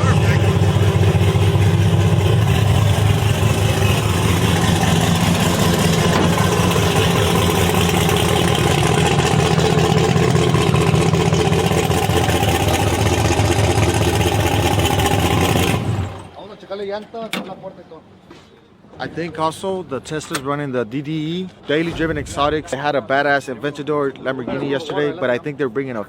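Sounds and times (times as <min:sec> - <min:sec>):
large engine idling: 0:00.0 - 0:16.5.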